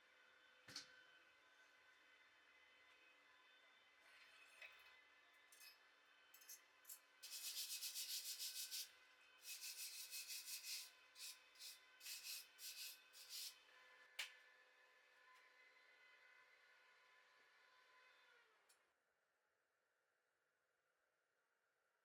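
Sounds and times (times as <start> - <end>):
wire brush scrubbing steel: 9.4 - 13.5.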